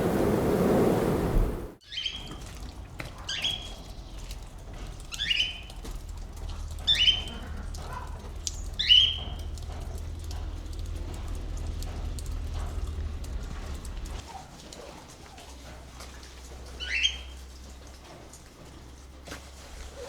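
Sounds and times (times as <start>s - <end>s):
bird calling: 0.0s - 2.6s, 3.2s - 4.4s, 5.0s - 14.2s, 16.8s - 17.4s.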